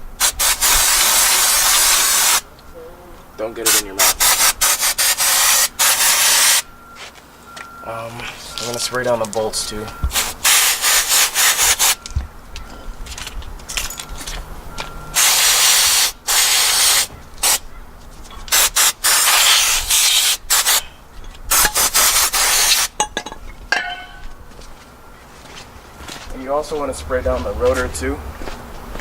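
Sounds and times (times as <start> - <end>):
aerosol spray hissing: 0.2 - 2.4, 3.7 - 6.6, 10.1 - 12.0, 15.2 - 17.6, 18.5 - 20.8, 21.5 - 22.9.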